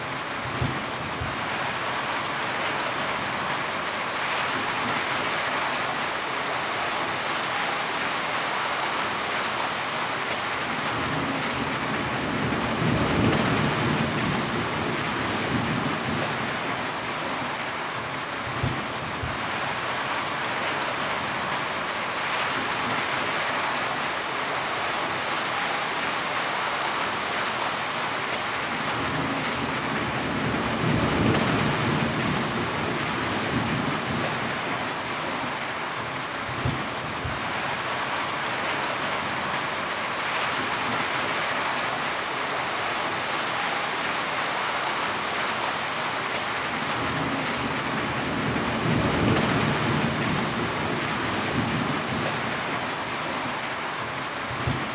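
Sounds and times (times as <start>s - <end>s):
heavy rain pattering: 0.0s - 54.9s.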